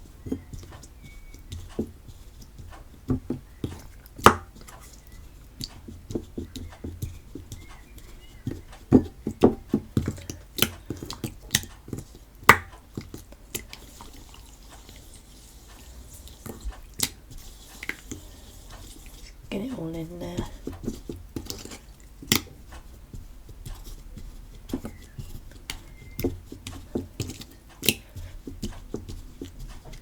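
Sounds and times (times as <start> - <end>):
slime being kneaded by hand: 0.0 - 30.0.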